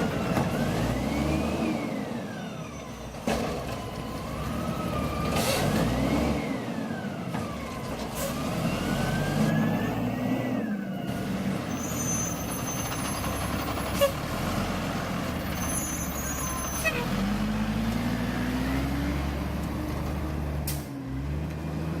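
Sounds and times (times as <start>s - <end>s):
garbage truck engine revving: 0.0s - 2.7s, 4.1s - 12.5s.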